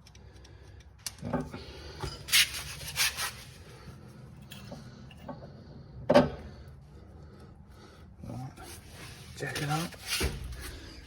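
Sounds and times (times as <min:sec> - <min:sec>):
scraping rubs: 0:02.3 - 0:03.6.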